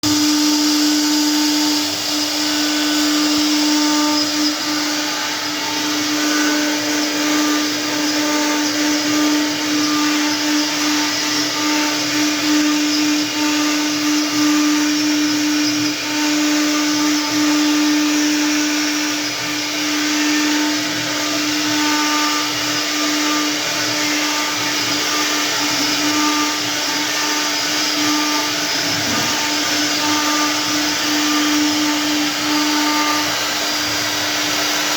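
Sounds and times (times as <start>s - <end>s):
cnc router spindle whine: 0.0s - 34.9s
stone cutting grinding hiss: 21.5s - 34.4s.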